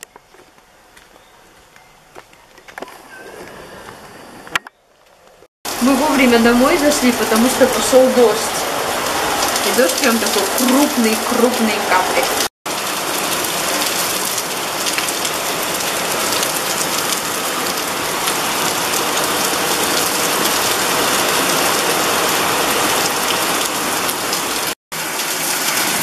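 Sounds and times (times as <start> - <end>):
heavy rain downpour: 5.7 - 26.0.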